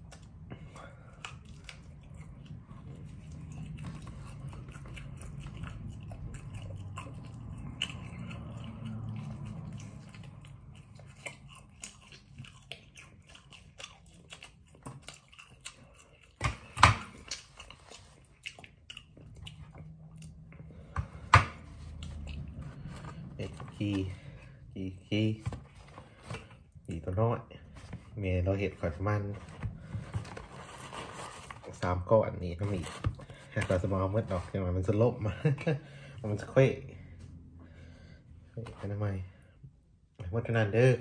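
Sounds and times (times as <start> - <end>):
person chewing: 0.0 - 24.7.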